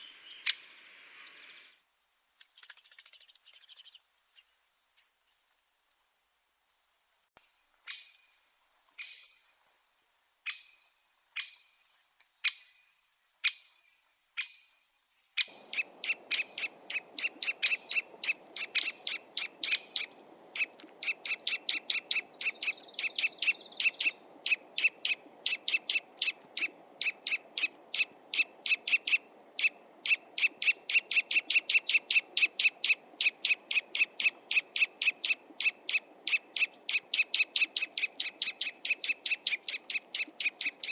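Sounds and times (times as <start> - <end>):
outdoor background hiss: 0.0 - 40.9
bird call notes: 15.4 - 40.9
fast run of repeated bird notes: 15.5 - 40.9.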